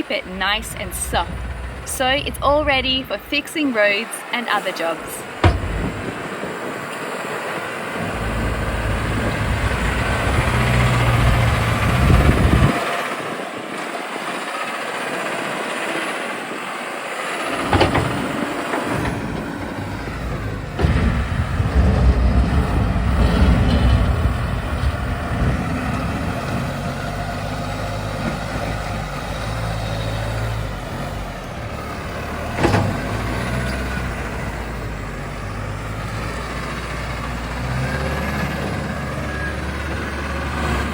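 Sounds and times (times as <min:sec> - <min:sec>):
loader bucket pushing gravel: 0:00.0 - 0:04.0, 0:04.8 - 0:40.9
tractor diesel engine working: 0:00.0 - 0:40.9
sharp knocks: 0:05.2 - 0:06.3.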